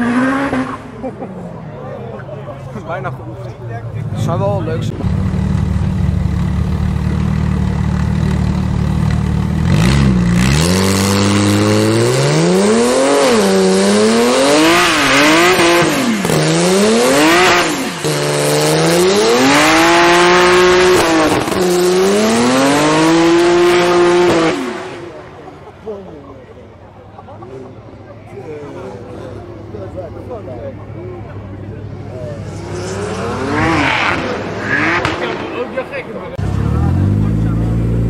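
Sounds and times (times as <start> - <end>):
car engine revving: 0.0 - 1.2, 4.0 - 25.8, 31.2 - 38.0.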